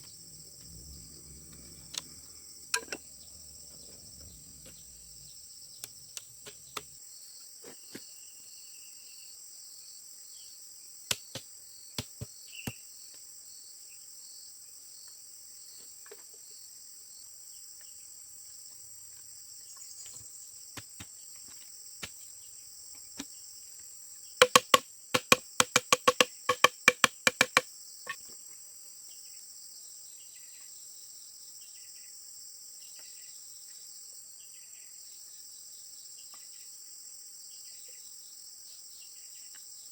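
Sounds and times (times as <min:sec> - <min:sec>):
crickets chirring: 0:00.0 - 0:39.9
sharp knocks: 0:24.4 - 0:27.6.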